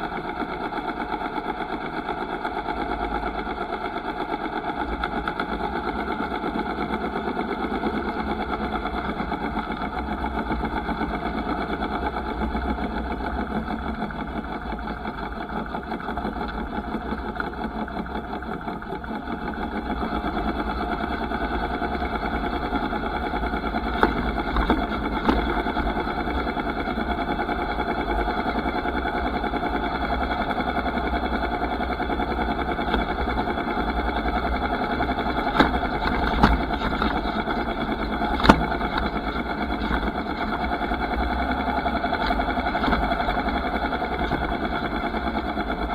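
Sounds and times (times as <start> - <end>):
sharp knocks: 22.6 - 28.4, 35.0 - 41.2.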